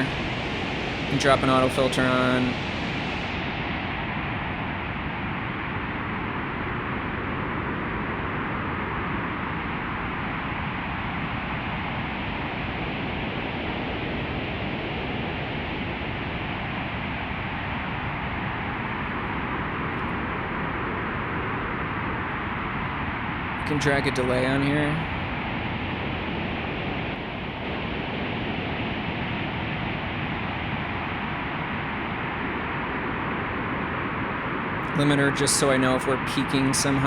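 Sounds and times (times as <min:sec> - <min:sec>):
filtered white noise rush: 0:00.0 - 0:37.0.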